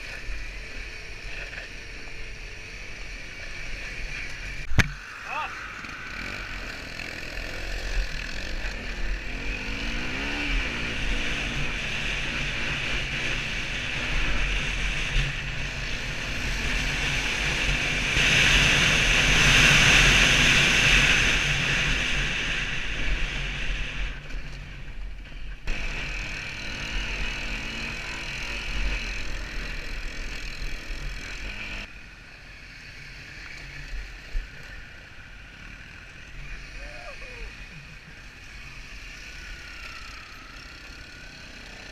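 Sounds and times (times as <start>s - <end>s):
dirt bike engine running: 0.0s - 32.0s.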